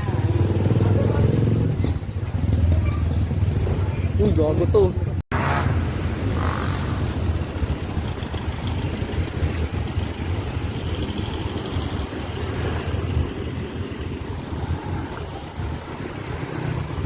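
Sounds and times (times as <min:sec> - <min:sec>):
road and traffic noise: 0:00.0 - 0:17.0
wind rumbling on microphone: 0:05.1 - 0:17.0.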